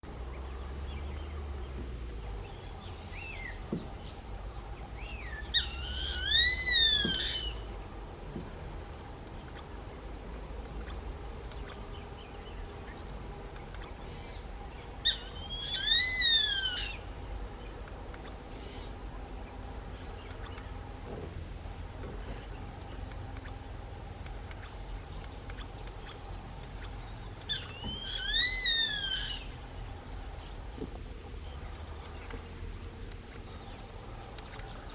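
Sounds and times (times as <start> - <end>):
buzzard calling: 2.6 - 7.9, 10.7 - 17.3, 24.5 - 30.6.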